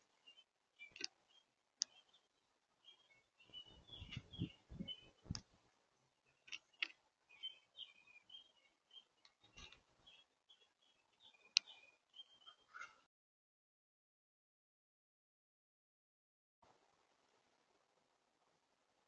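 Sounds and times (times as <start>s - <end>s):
small birds chirping: 0.0s - 13.1s.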